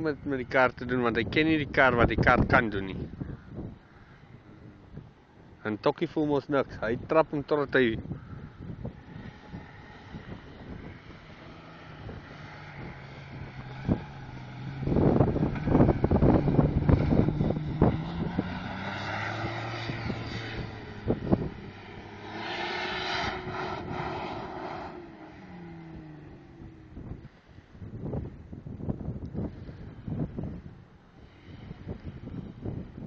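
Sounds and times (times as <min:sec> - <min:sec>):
wind buffeting microphone: 0:00.0 - 0:05.6, 0:06.6 - 0:33.0
car engine revving: 0:08.8 - 0:27.4.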